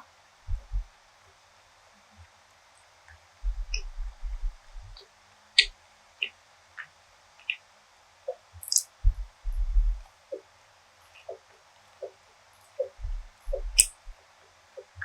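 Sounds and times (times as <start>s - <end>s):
muffled chewing thumps: 0.5s - 0.9s, 3.4s - 5.0s, 9.0s - 10.0s, 12.8s - 14.2s
mouth clicks and smacks: 8.3s - 10.0s, 12.8s - 14.1s.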